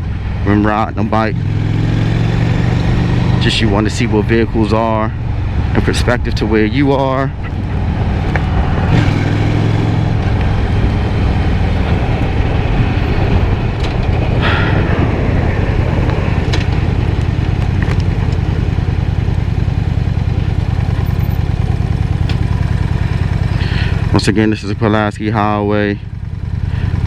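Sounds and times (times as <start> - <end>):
wind rushing over microphone: 0.0 - 20.9
motorcycle engine running: 0.0 - 27.0.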